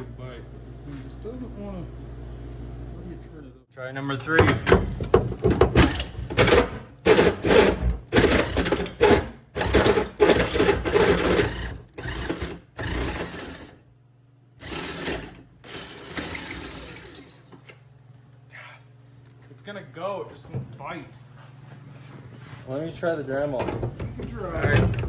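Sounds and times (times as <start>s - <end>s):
hole saw chattering on sheet metal: 4.3s - 13.8s.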